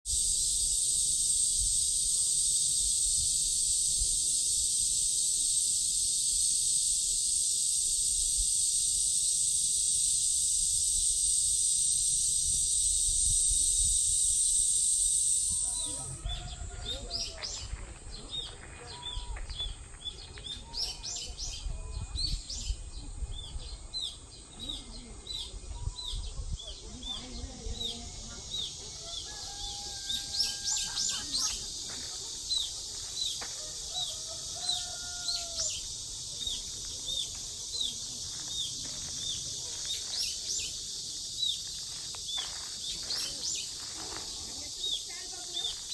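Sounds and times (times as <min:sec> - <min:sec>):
cicadas chorus: 0:00.0 - 0:45.9
birds chirping: 0:34.6 - 0:45.9.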